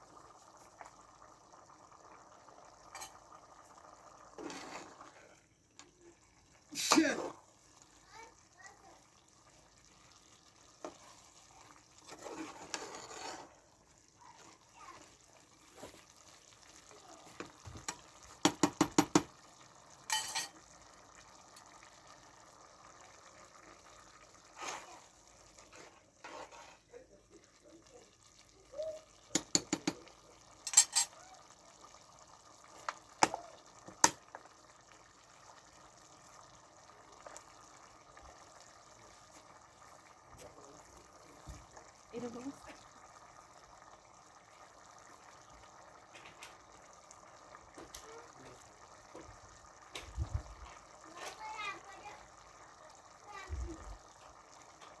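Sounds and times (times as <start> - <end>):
faint steady hiss: 0.0 - 55.0
utensil stirring in pot: 0.0 - 55.0
utensil clinking against pot: 20.1 - 20.6, 30.7 - 31.2.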